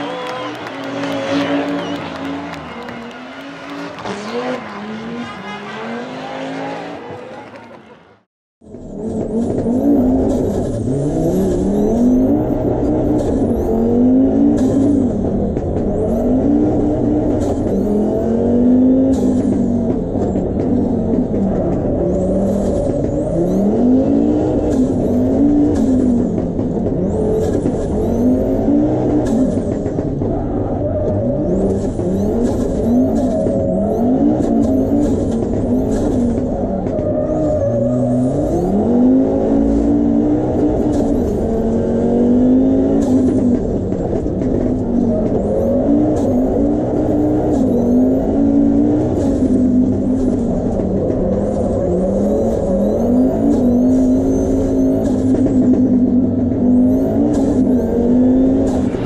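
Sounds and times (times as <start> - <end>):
high turbo whistles: 0.0 - 7.2
rally car engine revving hard: 0.0 - 59.0.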